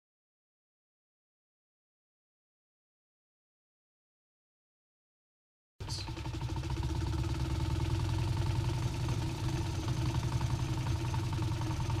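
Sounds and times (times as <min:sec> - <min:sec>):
fast fluttering pulse: 0:05.8 - 0:12.0.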